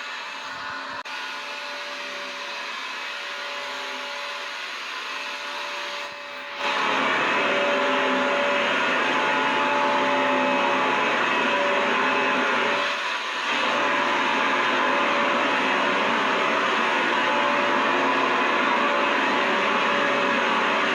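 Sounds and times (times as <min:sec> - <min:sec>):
vacuum cleaner running: 0:00.0 - 0:20.9.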